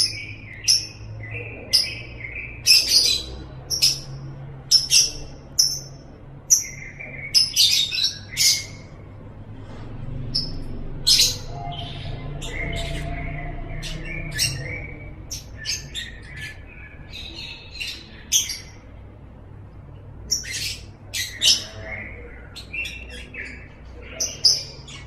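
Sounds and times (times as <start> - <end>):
bird chirping and squawking: 0.0 - 19.2, 20.0 - 25.0.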